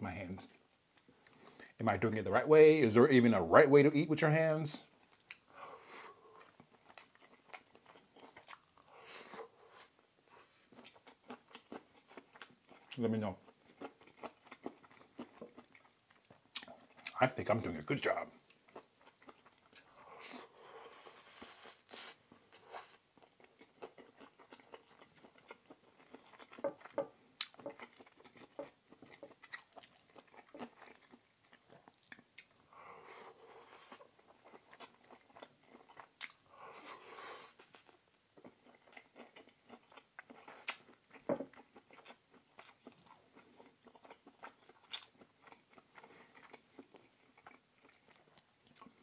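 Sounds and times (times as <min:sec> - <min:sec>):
man chewing food: 0:00.4 - 0:01.8, 0:04.8 - 0:17.2, 0:18.2 - 0:49.0.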